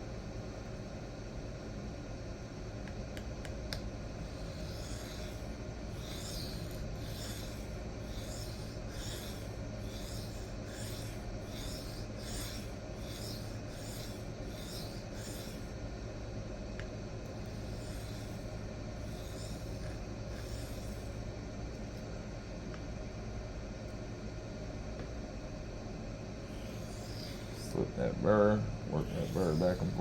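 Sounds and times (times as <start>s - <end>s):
knife scraping on sharpening stone: 4.4s - 15.7s, 17.6s - 21.1s, 26.6s - 27.8s.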